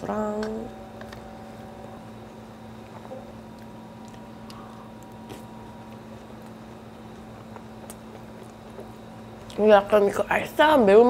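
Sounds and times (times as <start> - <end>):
steady low hum: 0.0 - 11.0
person chewing food: 2.8 - 9.6.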